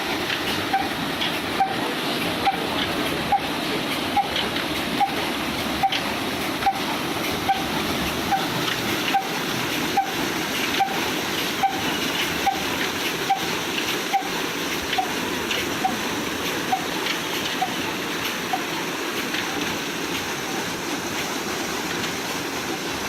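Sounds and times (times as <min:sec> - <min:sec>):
continuous rushing noise: 0:00.0 - 0:23.0
diesel engine beats: 0:00.0 - 0:23.0.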